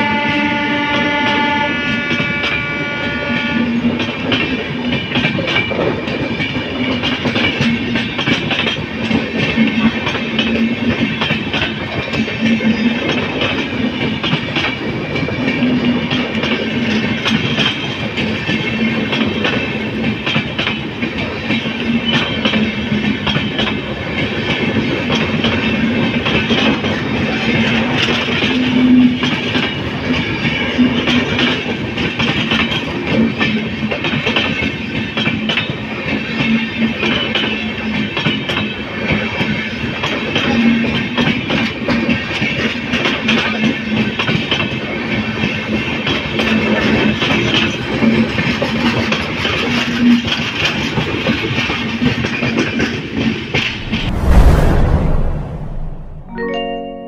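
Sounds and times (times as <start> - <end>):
train horn: 0.0 - 3.9
train wheels rumbling and clicking: 0.0 - 52.8.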